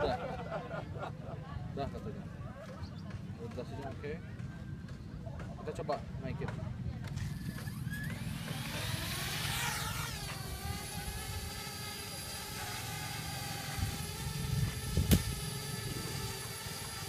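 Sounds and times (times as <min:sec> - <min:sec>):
drone propellers whining: 0:07.0 - 0:17.0.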